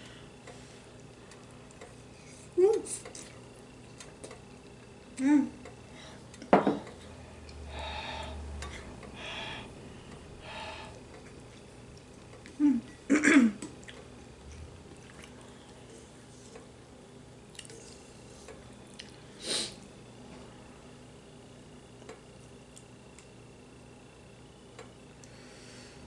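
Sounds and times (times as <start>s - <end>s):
chewing and slurping soup: 13.7s - 16.0s, 17.5s - 18.2s.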